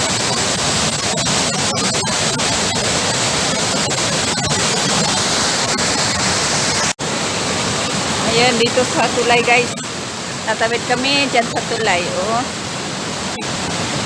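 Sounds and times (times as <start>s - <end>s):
waterfall and river rushing: 5.3s - 14.0s.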